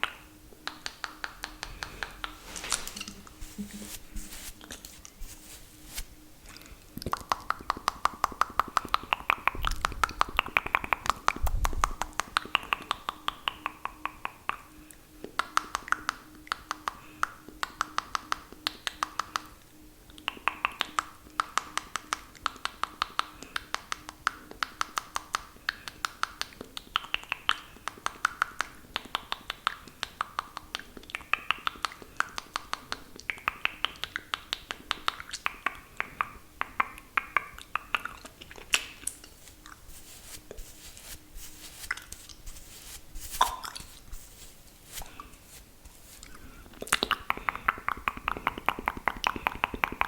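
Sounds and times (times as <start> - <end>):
wet mouth clicks: 35.0 - 39.8, 46.2 - 50.0.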